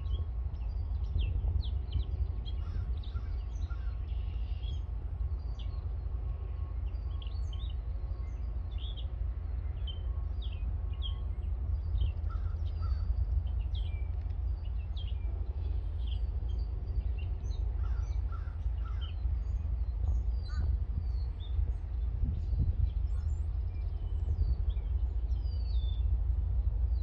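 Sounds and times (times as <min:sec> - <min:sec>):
steady low rumble: 0:00.0 - 0:27.0
birds chirping and calling: 0:17.8 - 0:19.2, 0:20.4 - 0:20.8.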